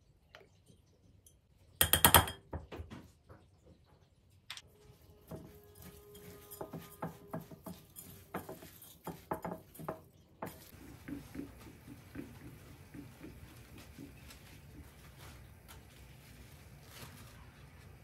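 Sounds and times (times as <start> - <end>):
dishes and utensils clinking: 5.3 - 14.6
soft regular tapping: 7.3 - 15.8.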